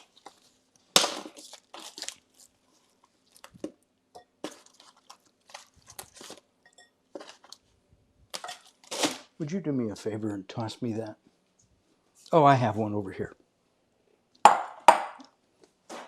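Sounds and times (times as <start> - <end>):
plastic package crinkling: 0.0 - 3.8, 4.4 - 6.5, 7.2 - 7.7.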